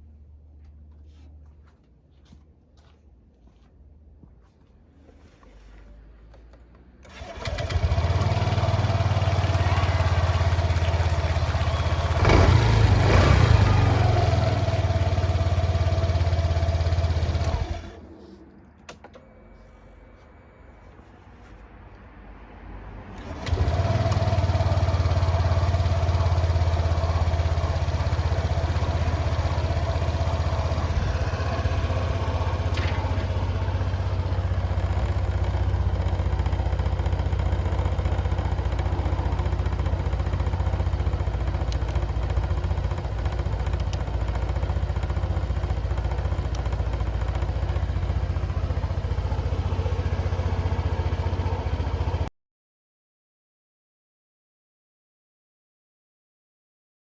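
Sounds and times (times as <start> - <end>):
scooter engine idling: 7.0 - 18.1, 23.2 - 52.3.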